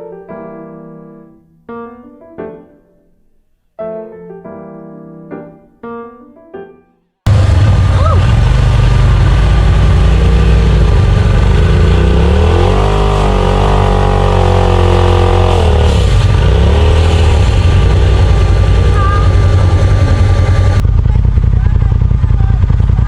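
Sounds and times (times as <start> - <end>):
utv engine revving: 7.3 - 23.0.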